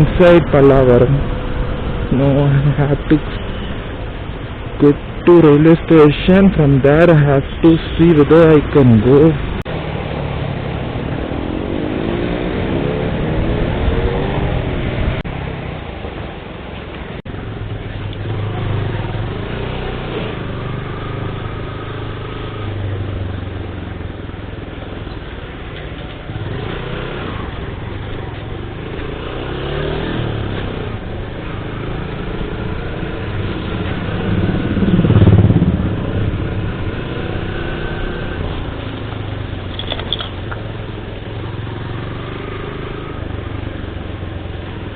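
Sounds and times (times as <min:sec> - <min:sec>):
road traffic: 0:00.0 - 0:44.9
motorcycle engine revving: 0:17.6 - 0:24.3, 0:26.2 - 0:44.9.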